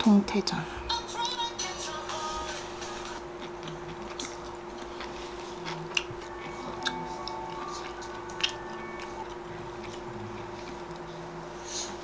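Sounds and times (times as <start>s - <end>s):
person chewing food: 3.2s - 12.0s.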